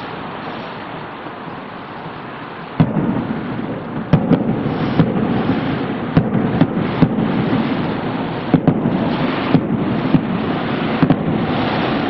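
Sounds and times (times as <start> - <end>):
firework shells bursting: 2.8 - 12.0.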